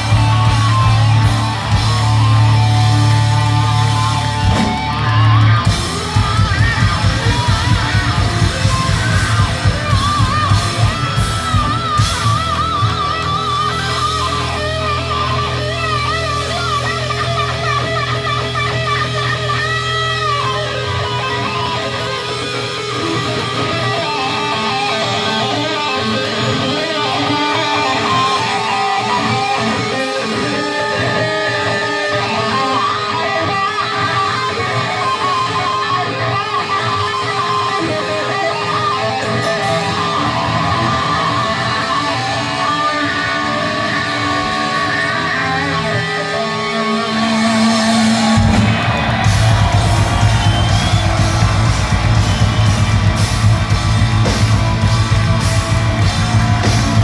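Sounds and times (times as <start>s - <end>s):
fast pounding drums: 0.0s - 35.4s, 47.2s - 57.0s
electric guitar lead: 0.0s - 57.0s.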